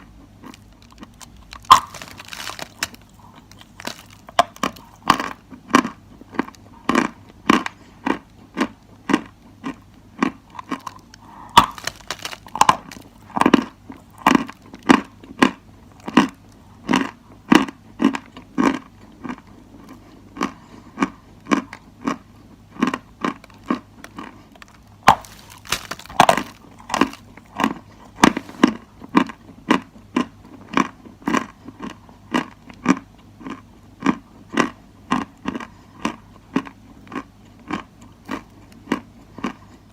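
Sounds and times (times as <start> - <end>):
chalk being chewed: 0.4 - 14.8, 22.8 - 29.4.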